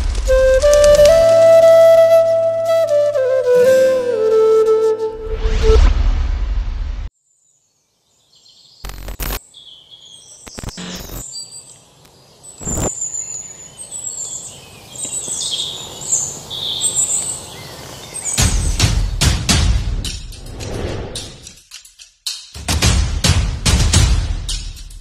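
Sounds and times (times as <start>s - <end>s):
birds chirping: 8.1s - 19.2s
music with deep drum beats: 18.4s - 25.0s.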